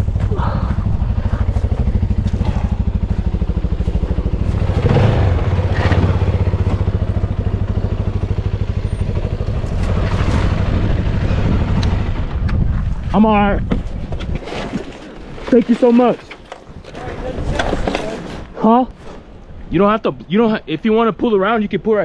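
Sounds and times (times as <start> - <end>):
motorcycle engine running: 0.0 - 14.2
clattering and scraping: 13.8 - 19.5.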